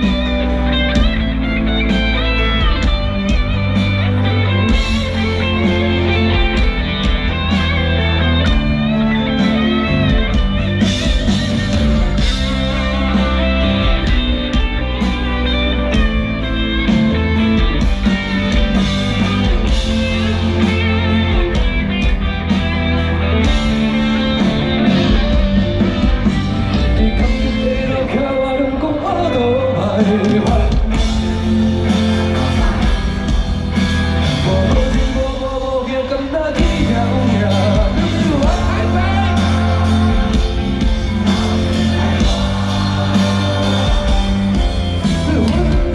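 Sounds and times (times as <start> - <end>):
live rock band playing: 0.0 - 45.9
person singing: 26.7 - 30.9, 31.9 - 45.9.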